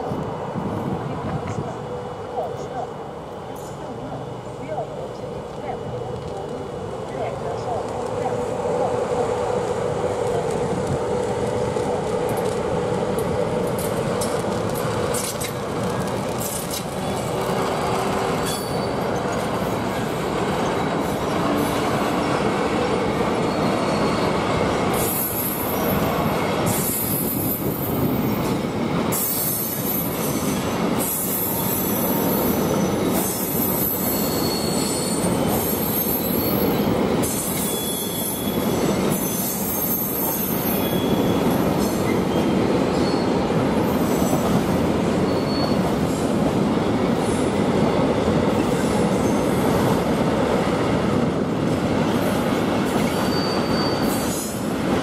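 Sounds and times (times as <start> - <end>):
train wheels rumbling over rails: 0.0 - 55.0
high-pitched wheel squeals: 18.4 - 19.3, 31.0 - 43.4, 45.2 - 45.8, 53.0 - 54.6.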